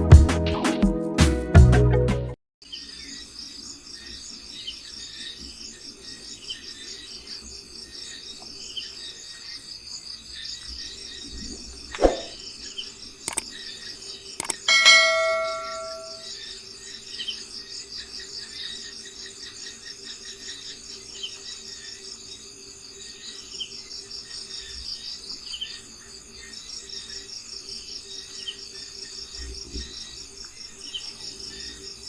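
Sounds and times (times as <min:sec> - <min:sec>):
insect chirring: 0:08.8 - 0:16.6
sharp clicks: 0:13.3 - 0:13.5, 0:14.4 - 0:14.7
bird chirps: 0:14.4 - 0:16.3
metallic clang ringing: 0:14.5 - 0:16.3.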